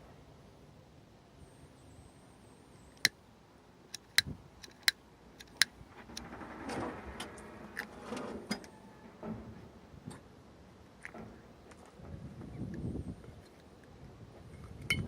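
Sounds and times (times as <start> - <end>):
sharp clicks and taps: 3.9 - 5.8
rattling and scraping: 4.7 - 10.2.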